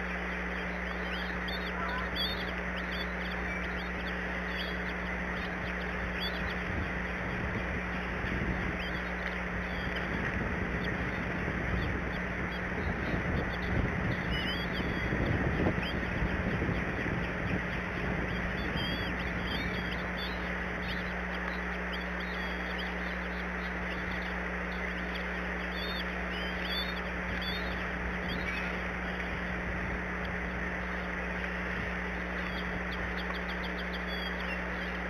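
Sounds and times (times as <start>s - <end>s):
short high bird calls: 0.0s - 10.1s, 11.9s - 29.4s
constant low hum: 0.0s - 35.0s.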